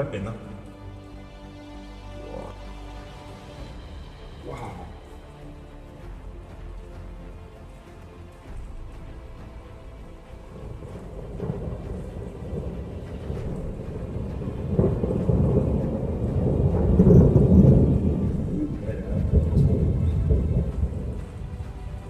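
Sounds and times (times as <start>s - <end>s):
steady rain: 0.0s - 22.0s
rolling thunder: 9.9s - 22.0s.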